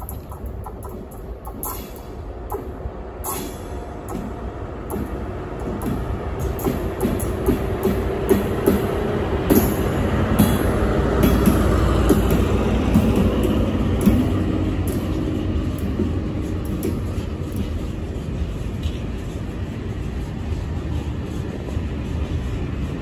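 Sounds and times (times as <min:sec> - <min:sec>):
diesel locomotive engine: 0:00.0 - 0:23.0
train wheel clicks: 0:00.0 - 0:23.0
freight wagons rumbling past: 0:03.5 - 0:23.0.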